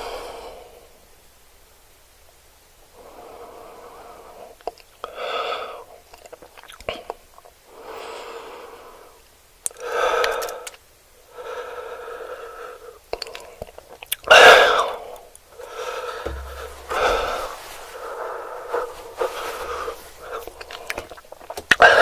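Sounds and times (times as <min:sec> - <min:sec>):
person eating: 0:06.1 - 0:07.2, 0:13.1 - 0:14.3, 0:15.2 - 0:22.0
wet mouth clicks: 0:06.1 - 0:07.2, 0:13.1 - 0:14.3, 0:20.5 - 0:21.8.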